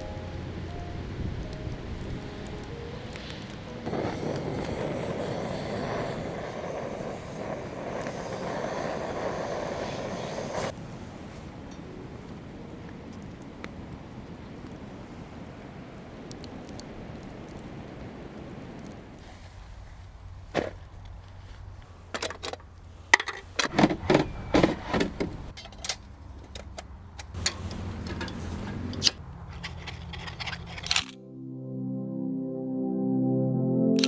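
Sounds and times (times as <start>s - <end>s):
steady outdoor noise: 0.0s - 31.2s
clinks and scrapes of objects handled: 25.6s - 31.2s.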